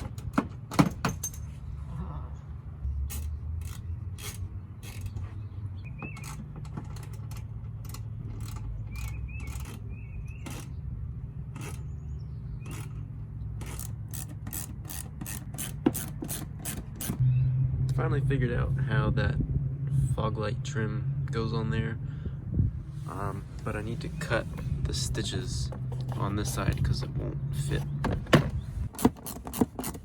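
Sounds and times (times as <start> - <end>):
rubbing and faint squeaks: 8.2 - 10.8, 22.9 - 30.0
steady low hum: 17.2 - 29.0.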